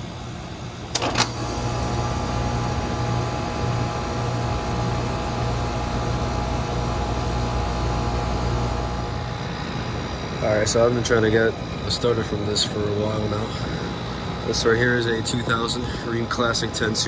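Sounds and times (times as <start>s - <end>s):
air conditioner mains hum: 0.0s - 17.0s
sharp clicks: 1.0s - 9.4s.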